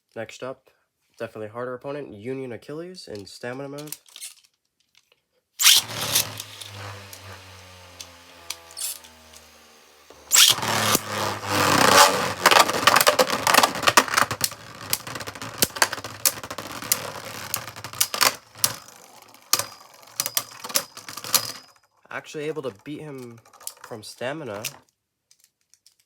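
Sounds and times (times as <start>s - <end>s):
spinning top launcher rip: 5.6s - 20.8s
spinning tops clashing in plastic stadium: 5.6s - 21.7s.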